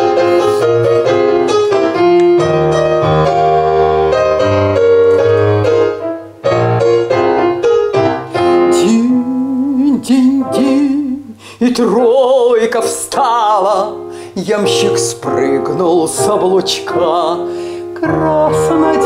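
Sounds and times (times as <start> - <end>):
person singing: 0.0 - 2.6, 8.2 - 19.0
keyboard playing folk melody: 0.0 - 11.5.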